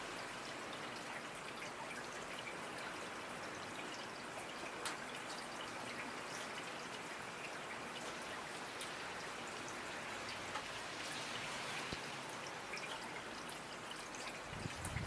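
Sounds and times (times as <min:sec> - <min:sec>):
raindrops ticking: 0:00.0 - 0:15.0
steady rainfall: 0:00.0 - 0:15.0.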